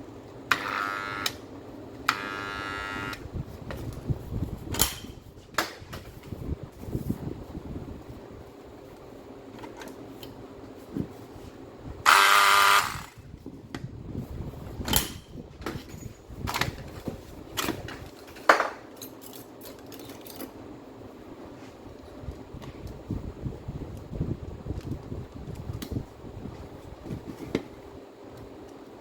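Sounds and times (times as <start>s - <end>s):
angle grinder motor whining: 0.5s - 1.4s, 2.1s - 3.2s, 12.0s - 13.2s.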